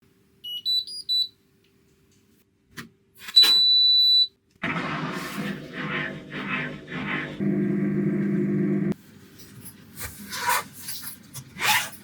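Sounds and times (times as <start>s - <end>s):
washing machine rushing hum: 4.6s - 9.0s.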